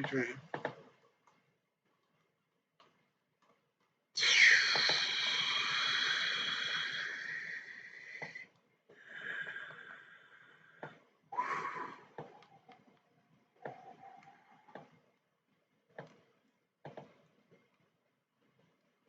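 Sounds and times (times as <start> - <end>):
person wheezing: 4.2 - 8.4, 11.4 - 12.2.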